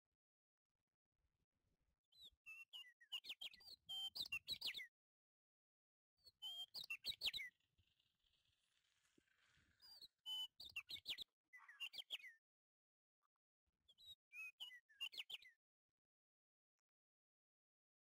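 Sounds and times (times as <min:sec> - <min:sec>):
small bird chirping: 0:02.1 - 0:04.9, 0:06.2 - 0:12.4, 0:13.9 - 0:15.6.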